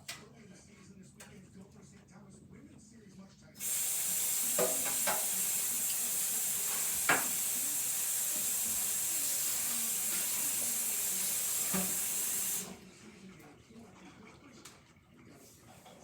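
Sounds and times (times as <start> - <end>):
high cooking hiss: 3.6 - 12.8.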